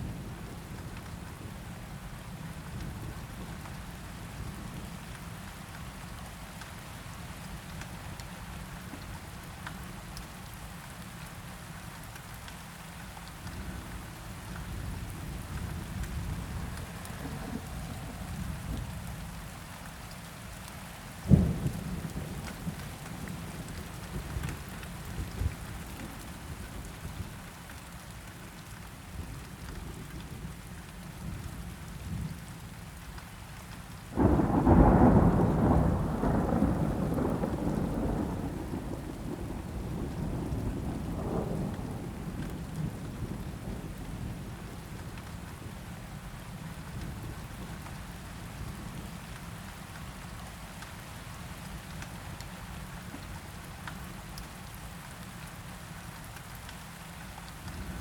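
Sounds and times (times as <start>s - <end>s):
steady rain: 0.0s - 58.0s
thunder rumbling: 15.3s - 19.0s, 34.2s - 44.7s.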